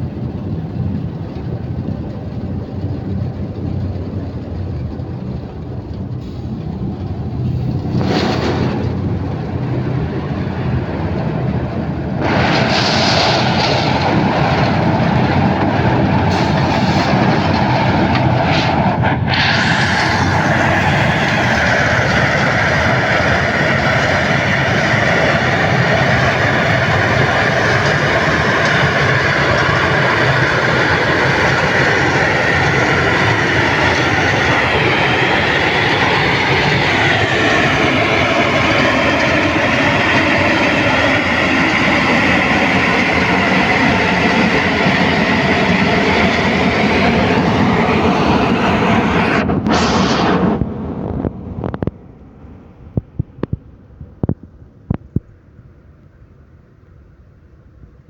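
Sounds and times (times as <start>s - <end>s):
mixing plant mechanical din: 0.3s - 37.2s
high whining tones: 11.7s - 52.9s.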